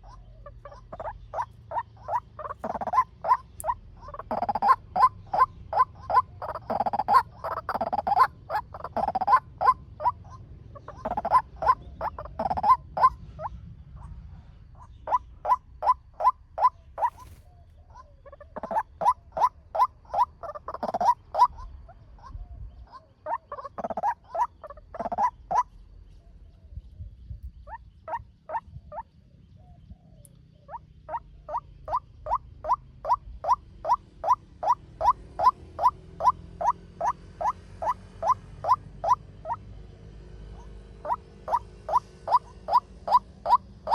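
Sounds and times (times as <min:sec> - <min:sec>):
waterhen calling: 0:00.0 - 0:10.2, 0:10.8 - 0:13.2, 0:14.8 - 0:21.6, 0:23.2 - 0:25.7, 0:31.1 - 0:39.6, 0:41.0 - 0:43.9.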